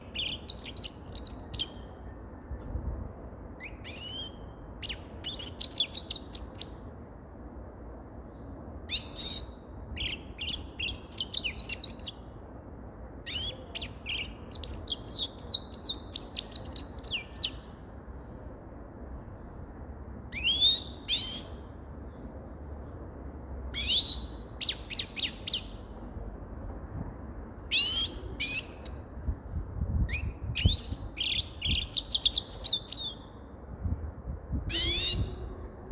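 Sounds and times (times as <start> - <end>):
bird twittering song: 0.0 - 2.9, 3.6 - 7.0, 8.9 - 12.3, 13.3 - 18.3, 20.3 - 22.2, 23.7 - 25.9, 27.7 - 29.2, 30.0 - 33.4, 34.7 - 35.5
steady low hiss: 0.0 - 35.9.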